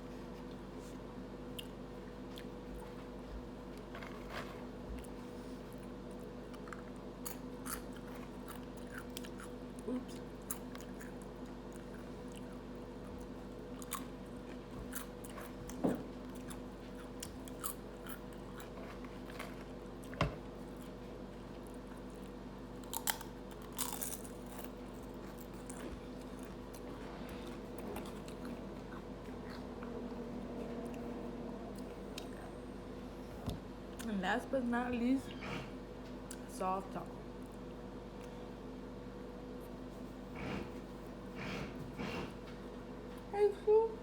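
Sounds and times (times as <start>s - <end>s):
person chewing food: 0.2s - 3.9s, 5.0s - 31.1s
low hum: 23.8s - 38.7s.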